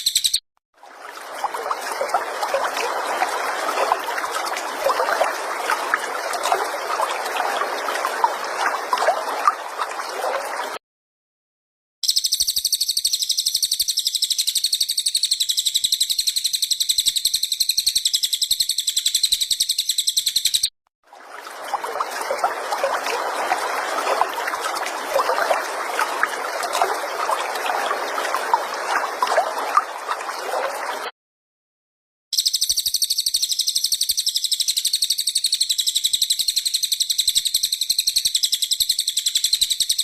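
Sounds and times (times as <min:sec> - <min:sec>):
high rapid bird trill: 0:00.0 - 0:00.4.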